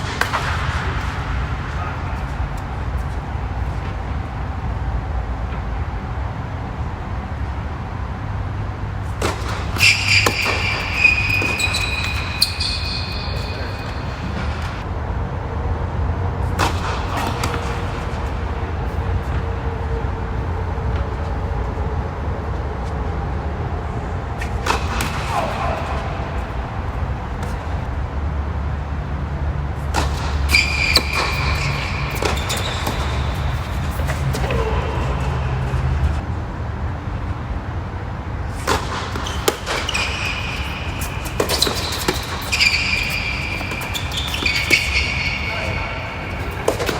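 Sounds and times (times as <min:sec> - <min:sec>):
tennis balls struck by rackets: 0:00.0 - 0:04.0, 0:09.0 - 0:14.9, 0:16.4 - 0:19.6, 0:24.4 - 0:27.8, 0:29.8 - 0:36.2, 0:38.5 - 0:46.9
high-pitched squeal: 0:09.5 - 0:14.8, 0:30.4 - 0:36.2, 0:39.2 - 0:46.9.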